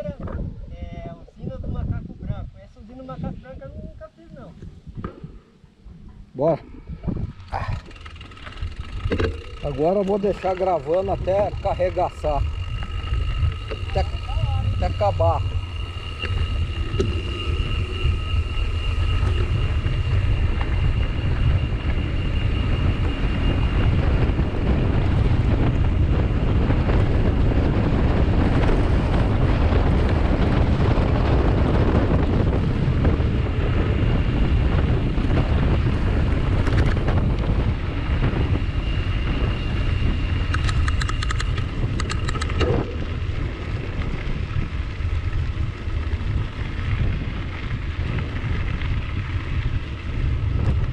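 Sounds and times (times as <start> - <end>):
wind buffeting microphone: 0.0 - 50.9
quick clicks: 40.5 - 42.8.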